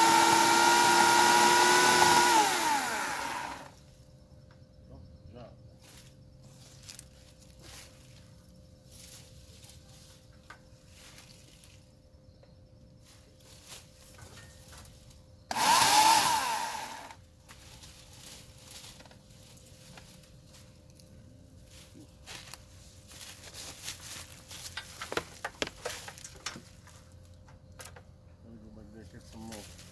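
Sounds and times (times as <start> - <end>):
electric chainsaw running: 0.0 - 3.8, 15.5 - 17.2.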